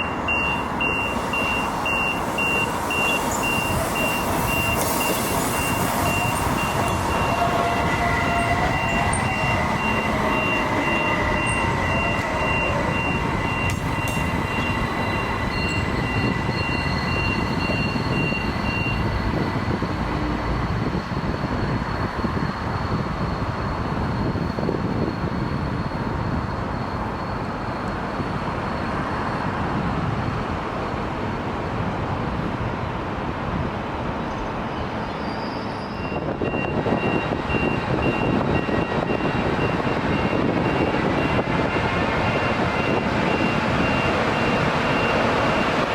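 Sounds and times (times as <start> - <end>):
rail vehicle rumbling by: 0.0 - 45.9
high pulsed beeping: 8.2 - 19.2.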